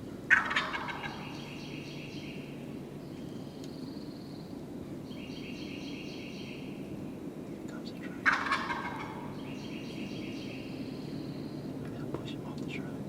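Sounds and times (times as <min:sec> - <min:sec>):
distant turkey gobbling: 0:00.3 - 0:01.9, 0:08.2 - 0:11.2.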